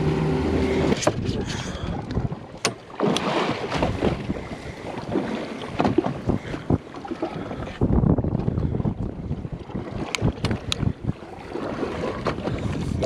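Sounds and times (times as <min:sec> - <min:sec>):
water sloshing against hull: 0:00.0 - 0:13.0
wind buffeting microphone: 0:00.5 - 0:02.6, 0:03.5 - 0:13.0
sharp knocks on boat: 0:02.6 - 0:04.2, 0:05.2 - 0:06.4.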